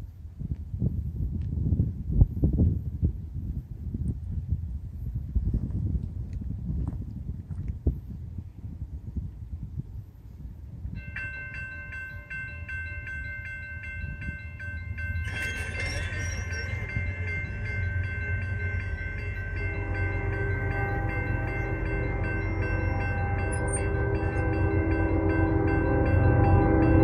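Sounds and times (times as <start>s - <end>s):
low rumble of approaching train: 0.0s - 27.0s
railroad crossing bell ringing: 10.9s - 27.0s
train horn chord: 15.2s - 27.0s.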